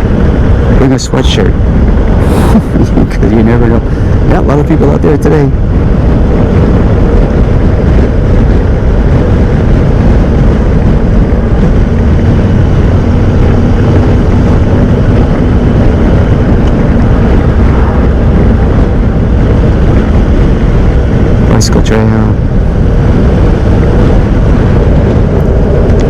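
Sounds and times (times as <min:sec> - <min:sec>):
wind noise on microphone: 0:00.0 - 0:26.0.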